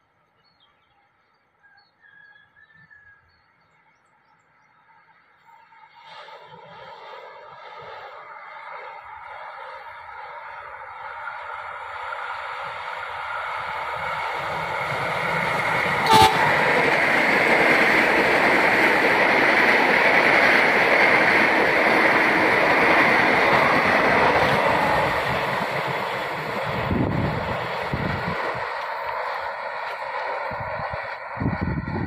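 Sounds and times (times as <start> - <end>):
train wheels rushing on rail: 5.6 - 32.0
train horn toot: 16.0 - 16.7.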